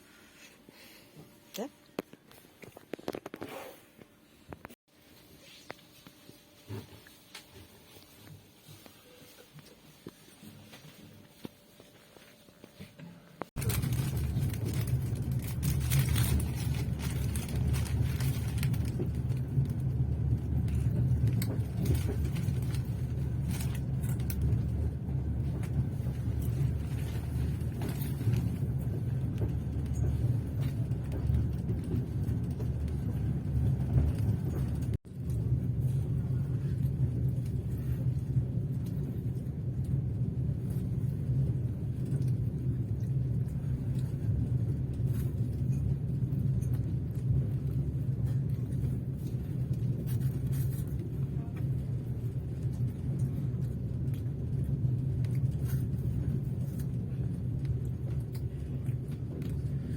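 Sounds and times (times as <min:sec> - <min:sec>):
train wheels rumbling on rails: 0:13.6 - 0:59.9.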